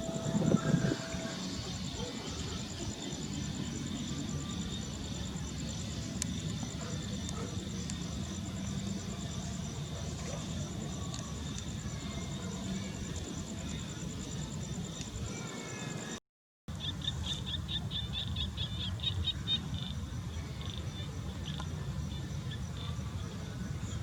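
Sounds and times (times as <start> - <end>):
high-pitched insect trill: 0.0 - 9.8.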